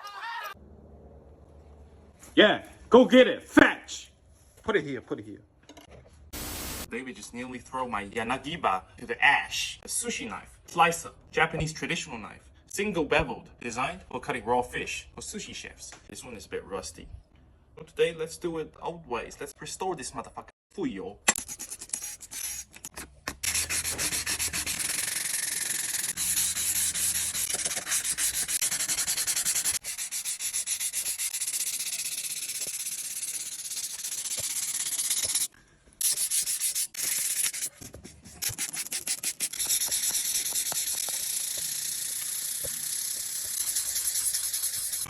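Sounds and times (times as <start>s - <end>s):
sandpaper rasping on steel blade: 21.3s - 45.0s.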